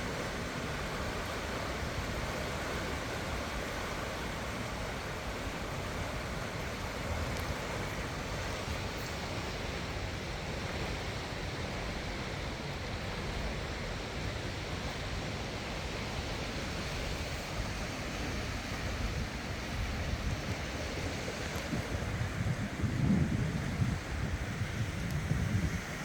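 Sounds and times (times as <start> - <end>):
floodwater rushing: 0.0 - 26.0
wind buffeting microphone: 15.9 - 26.0.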